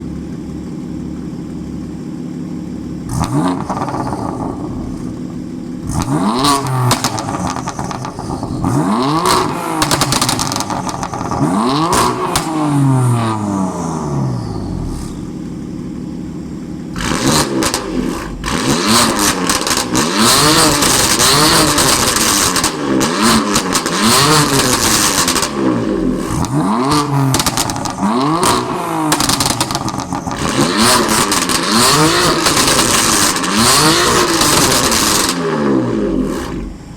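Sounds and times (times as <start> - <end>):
car engine revving: 0.0 - 36.9
exhaust crackling and popping: 0.0 - 36.9.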